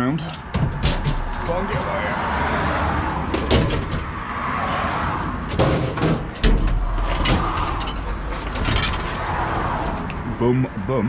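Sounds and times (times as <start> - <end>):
knocks and bangs of bicycles: 0.0 - 2.4, 3.2 - 4.3, 5.4 - 9.4
low rumble: 6.3 - 10.2.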